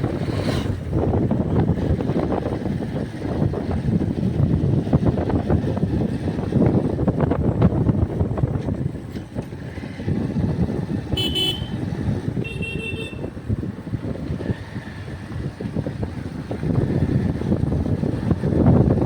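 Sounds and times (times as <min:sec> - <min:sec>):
wind rumble on microphone: 0:00.0 - 0:19.0
vehicle horn toots: 0:11.1 - 0:13.3.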